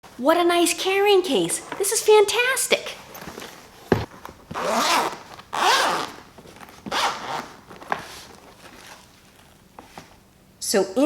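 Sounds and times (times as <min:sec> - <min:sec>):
zipper being pulled open: 0:04.5 - 0:09.6.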